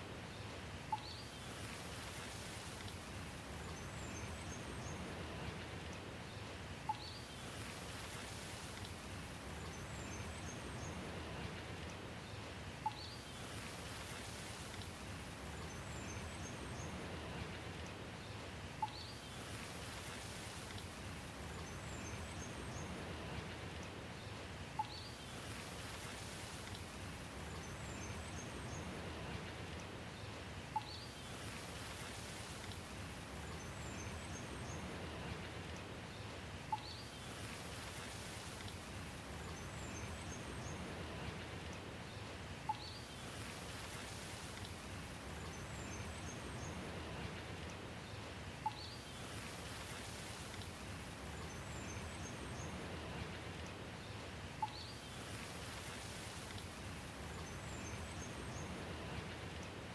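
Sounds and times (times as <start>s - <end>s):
steady rain: 0.0s - 59.9s
faint high bird chirps: 18.8s - 19.5s, 48.6s - 49.3s, 54.6s - 55.3s.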